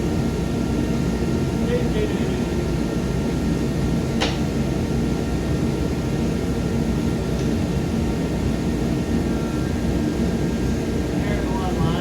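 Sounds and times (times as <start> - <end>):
heater whooshing hum: 0.0 - 12.0.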